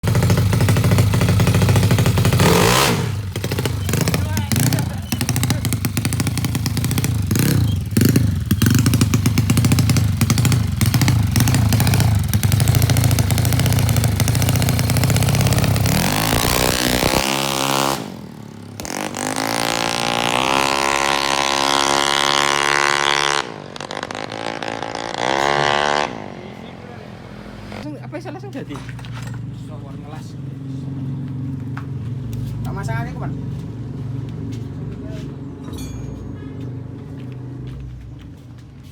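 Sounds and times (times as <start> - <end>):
scooter engine revving: 0.0 - 27.9.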